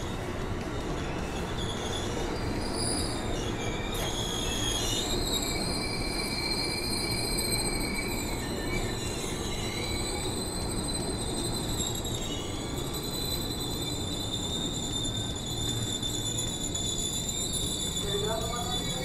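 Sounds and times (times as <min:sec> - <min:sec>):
train wheels rumbling on rails: 0:00.0 - 0:19.0
high metallic squealing: 0:00.8 - 0:19.0.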